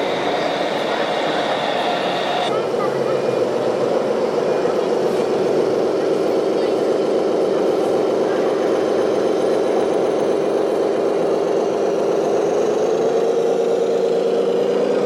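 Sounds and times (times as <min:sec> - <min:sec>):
small motor humming: 0:00.0 - 0:02.5.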